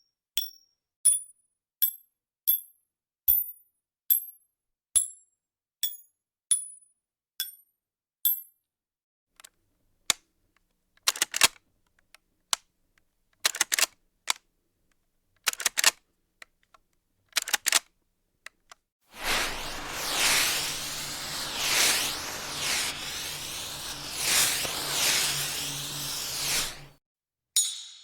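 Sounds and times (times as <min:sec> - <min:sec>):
sharp mechanical clicks: 0:11.0 - 0:11.6, 0:15.4 - 0:16.0, 0:17.3 - 0:17.9.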